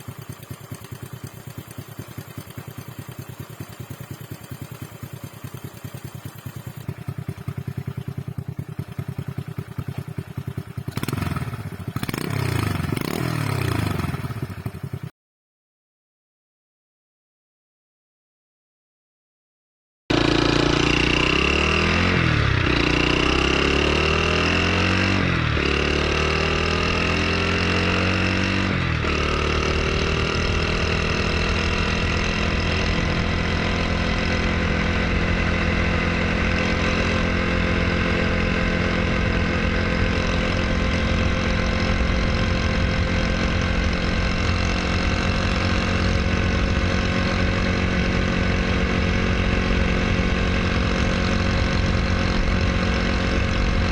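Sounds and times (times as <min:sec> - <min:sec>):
small motorbike engine blipping and idling: 0:00.0 - 0:15.1.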